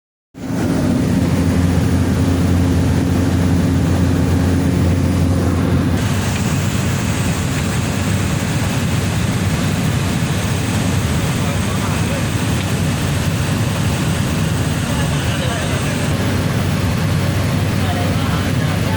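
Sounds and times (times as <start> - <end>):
propeller plane engine drone in cabin: 0.4 - 18.9.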